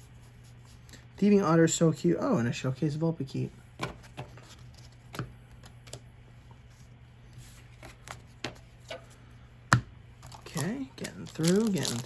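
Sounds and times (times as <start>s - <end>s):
cards being flipped through: 10.2s - 12.0s.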